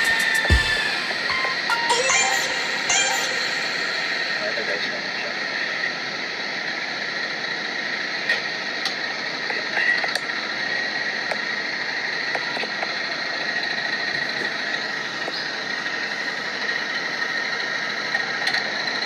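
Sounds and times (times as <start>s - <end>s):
machine running with high hum: 0.0s - 19.0s.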